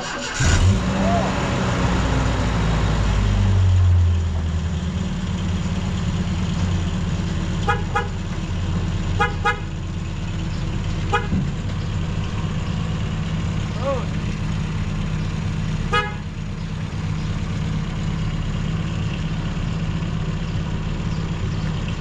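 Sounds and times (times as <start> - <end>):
vehicle engine idling: 0.0 - 22.0
car horn beeps: 7.6 - 8.2, 9.2 - 9.8, 11.1 - 11.4, 15.9 - 16.3.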